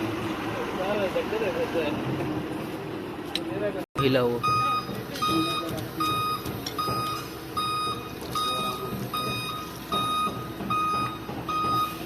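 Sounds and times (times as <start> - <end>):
low engine rumble: 0.0 - 12.0
reversing alarm beeping: 4.0 - 12.0.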